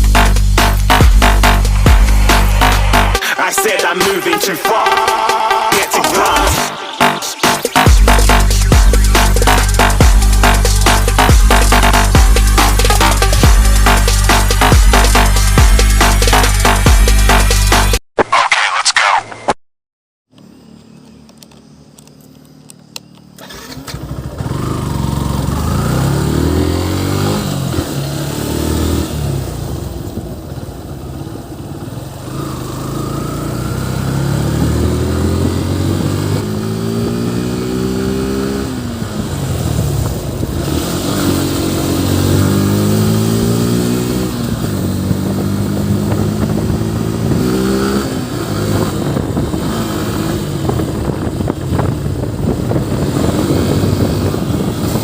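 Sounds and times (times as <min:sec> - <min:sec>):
motorcycle engine accelerating: 0:00.0 - 0:03.2, 0:07.0 - 0:18.0, 0:20.5 - 0:55.0
wind and road noise hiss: 0:44.2 - 0:55.0.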